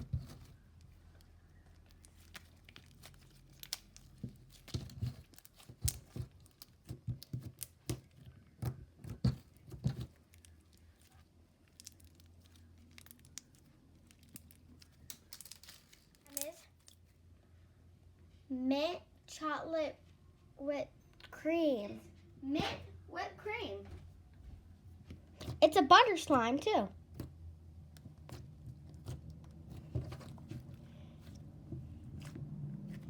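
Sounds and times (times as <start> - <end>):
slime crackling and popping: 0.1 - 8.6, 9.2 - 17.0.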